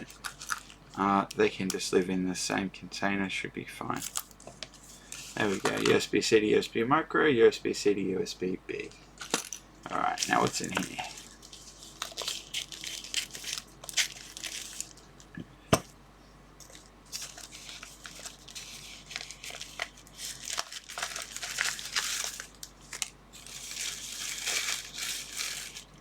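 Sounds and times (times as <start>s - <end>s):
packaging rustling: 0.0s - 1.5s, 4.0s - 6.0s, 9.2s - 15.4s, 16.6s - 26.0s.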